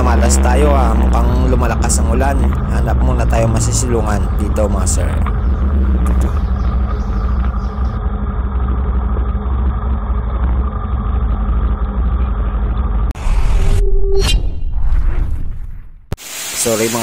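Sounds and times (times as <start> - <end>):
motorcycle engine idling: 0.0 - 13.1.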